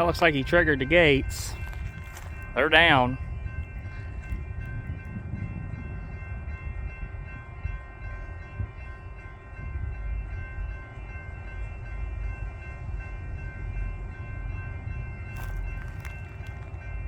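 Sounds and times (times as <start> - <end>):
railroad crossing bell ringing: 0.0 - 17.0.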